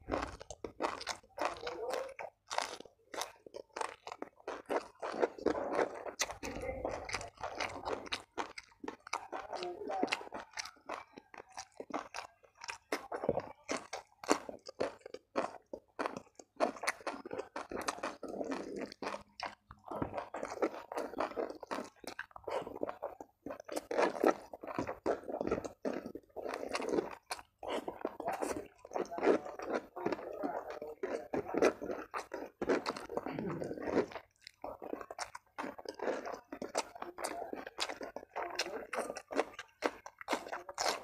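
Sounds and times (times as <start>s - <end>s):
close crunching and chewing: 0.0s - 41.0s.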